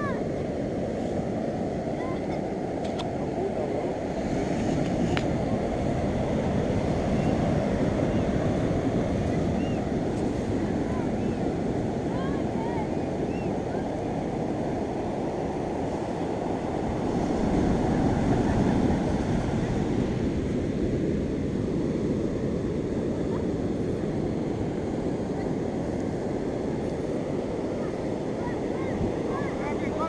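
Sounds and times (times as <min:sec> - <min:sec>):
beach surf: 0:00.0 - 0:30.0
wind buffeting microphone: 0:00.0 - 0:30.0.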